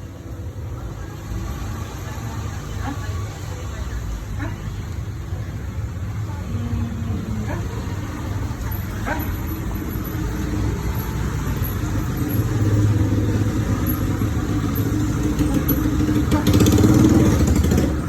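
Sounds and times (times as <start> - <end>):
vehicle engine running: 6.8 - 18.0.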